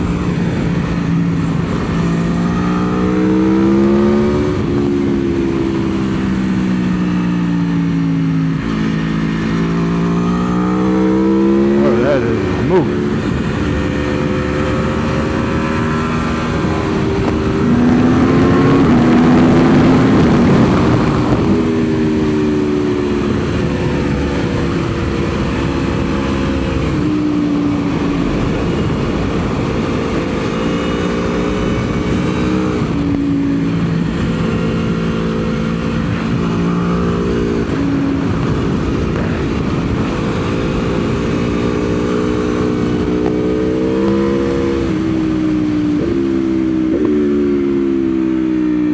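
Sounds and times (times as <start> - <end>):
motorcycle engine revving: 0.0 - 48.9
rush of noise: 10.8 - 22.8.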